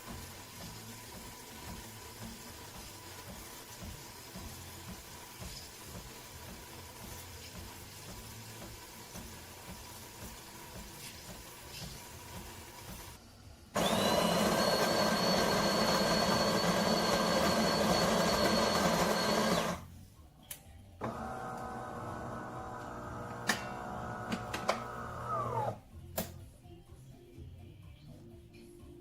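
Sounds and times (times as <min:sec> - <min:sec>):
espresso machine high whine: 0:13.8 - 0:19.8, 0:21.0 - 0:25.8.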